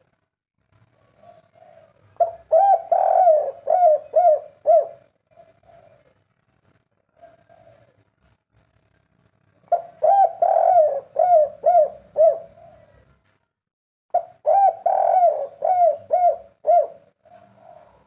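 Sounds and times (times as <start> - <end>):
dove cooing: 1.0 - 6.2, 7.1 - 8.1, 9.7 - 13.2, 14.2 - 18.0.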